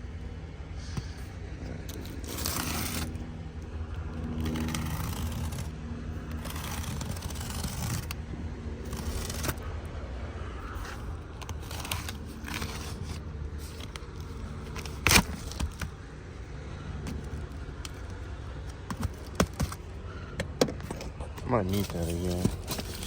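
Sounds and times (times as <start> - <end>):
knife slitting tape and cardboard: 1.8 - 3.2, 4.4 - 5.7, 6.3 - 8.2, 8.8 - 9.7, 10.7 - 16.0, 18.8 - 19.8, 21.7 - 23.0.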